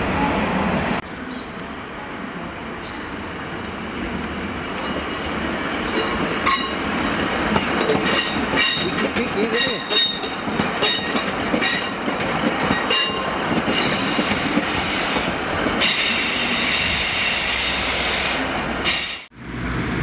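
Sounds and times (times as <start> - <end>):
wheels clattering over rail joints: 4.8 - 14.7.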